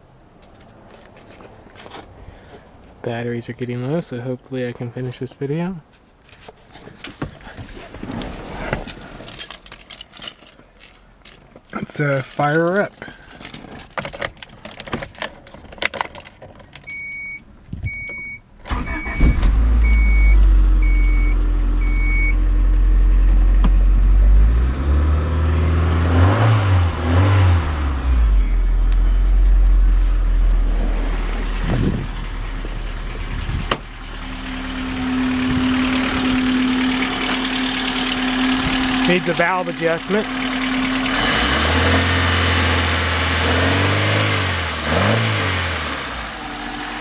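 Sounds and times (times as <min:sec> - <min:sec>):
car engine starting and idling: 0:07.0 - 0:47.0
car warning chime beeping: 0:16.9 - 0:22.4.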